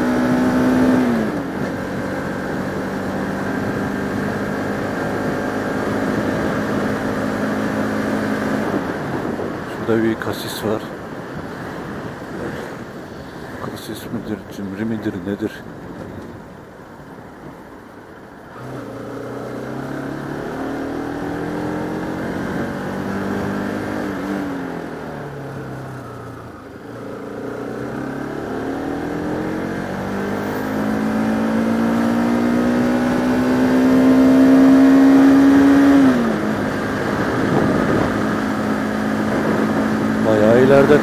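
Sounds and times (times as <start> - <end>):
motorcycle engine: 0.0 - 9.7, 18.4 - 41.0.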